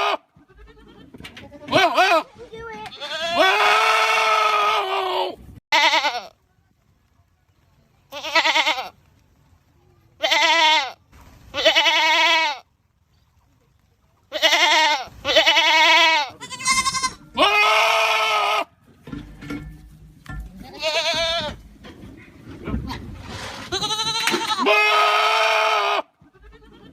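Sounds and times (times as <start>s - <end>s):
goats screaming: 0.0s - 1.0s, 3.0s - 6.2s, 14.4s - 18.7s, 23.6s - 26.9s.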